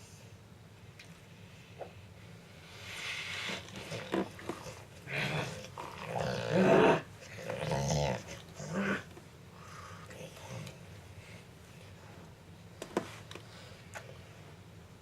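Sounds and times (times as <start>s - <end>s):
dog growling: 3.8s - 9.1s.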